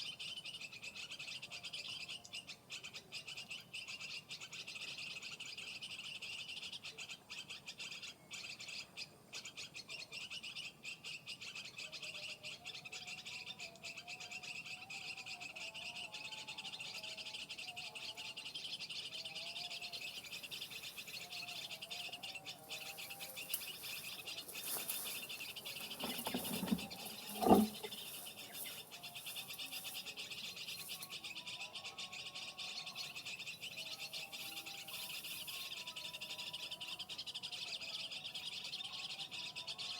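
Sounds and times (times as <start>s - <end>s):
birds chirping: 16.0s - 39.8s.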